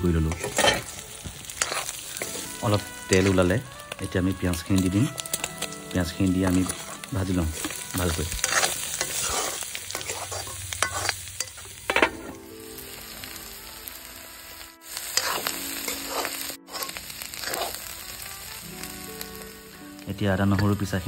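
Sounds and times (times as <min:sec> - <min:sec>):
meat sizzling in a wok: 0:00.0 - 0:21.0
spatula scraping a pan: 0:00.2 - 0:03.7, 0:06.4 - 0:12.3, 0:14.9 - 0:18.1.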